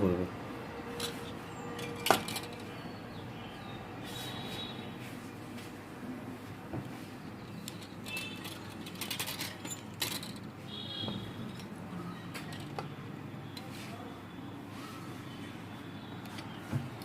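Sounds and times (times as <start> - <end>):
parts clicking and rattling: 0.9 - 2.8, 7.4 - 13.7.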